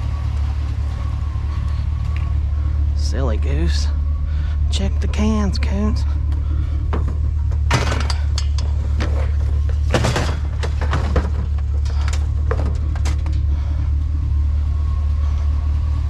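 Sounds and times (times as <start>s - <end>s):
vehicle engine idling: 0.0s - 16.0s
junk clattering in trash can: 8.9s - 13.3s.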